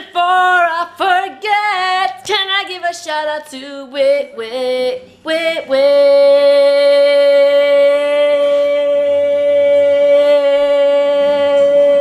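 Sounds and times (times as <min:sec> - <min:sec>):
woman singing a long note: 0:04.2 - 0:12.0.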